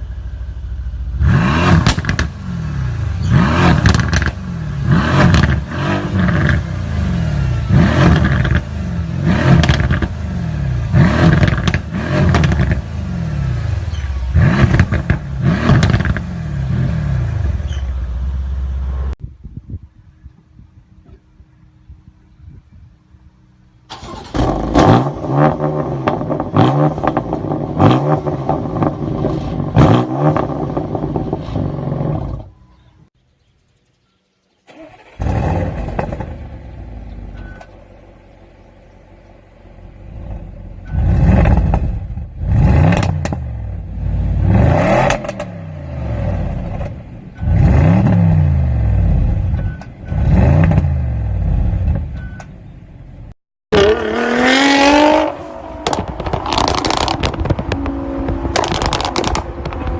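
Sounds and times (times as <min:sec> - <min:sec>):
car engine revving loudly: 0:01.2 - 0:17.6, 0:24.2 - 0:32.4, 0:41.0 - 0:49.4, 0:50.1 - 0:52.0, 0:53.7 - 0:59.9
exhaust cracks: 0:01.6 - 0:02.4, 0:03.2 - 0:04.4, 0:07.7 - 0:10.2, 0:10.8 - 0:13.0, 0:13.8 - 0:16.3, 0:34.7 - 0:37.4, 0:53.7 - 0:59.9
engine rev blips: 0:40.1 - 0:52.8, 0:53.7 - 0:59.9.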